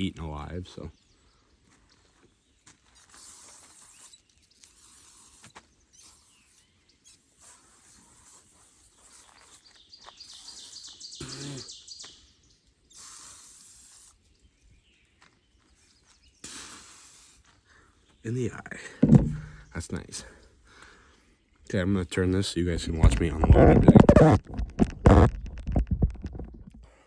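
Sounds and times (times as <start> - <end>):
aerosol spray hissing: 13.0 - 14.2, 16.5 - 17.4
knock: 19.0 - 19.6.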